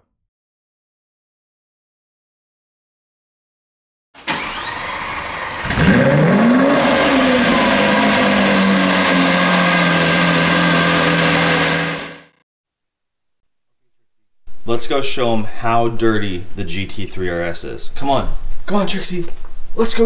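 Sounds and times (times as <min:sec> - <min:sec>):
car engine cranking: 0:04.2 - 0:12.4
car engine idling: 0:04.2 - 0:12.4.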